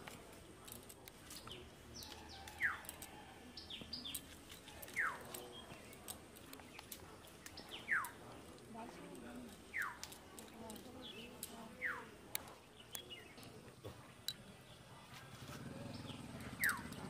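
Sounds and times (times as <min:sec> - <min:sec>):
faint scattered clicks: 0:00.0 - 0:14.8, 0:15.4 - 0:17.0
high bird chirps: 0:01.4 - 0:06.0, 0:06.6 - 0:08.2, 0:09.6 - 0:10.1, 0:11.0 - 0:12.1, 0:16.0 - 0:17.0.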